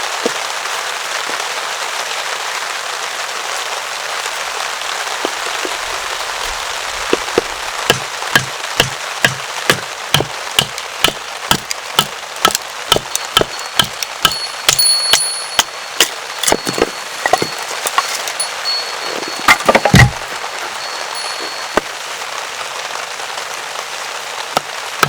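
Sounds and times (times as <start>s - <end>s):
steady rain: 0.0s - 25.0s
sharp wooden knocks: 7.1s - 20.3s.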